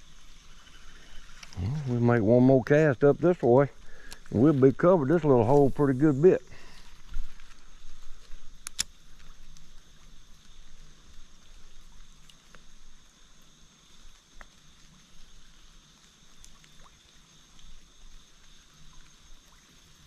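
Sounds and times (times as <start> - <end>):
faint steady hiss: 0.0 - 20.0
faint ticks: 0.1 - 2.0, 3.7 - 5.6, 6.6 - 20.0
sharp clicks: 8.6 - 9.6.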